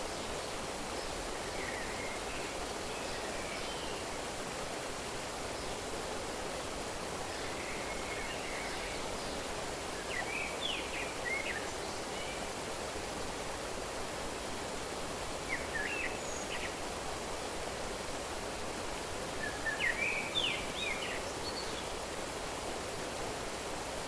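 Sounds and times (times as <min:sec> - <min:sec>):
running water rushing: 0:00.0 - 0:24.0
small birds chirping: 0:19.4 - 0:22.1.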